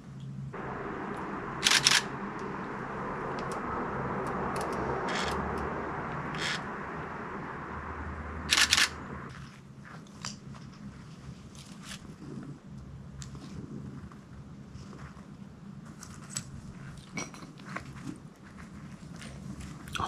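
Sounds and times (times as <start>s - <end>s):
steady rushing noise: 0.5s - 9.4s.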